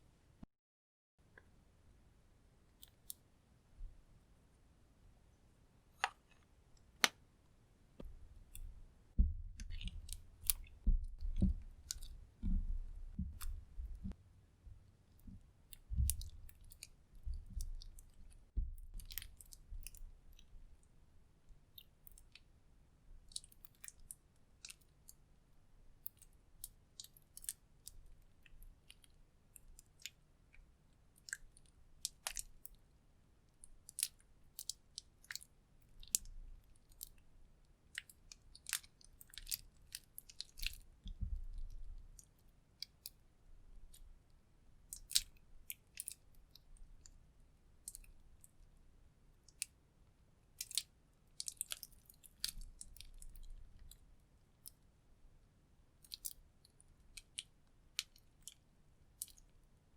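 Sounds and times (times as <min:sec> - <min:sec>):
soft low thuds: 0:08.0 - 0:16.5, 0:18.6 - 0:19.0, 0:41.0 - 0:41.6.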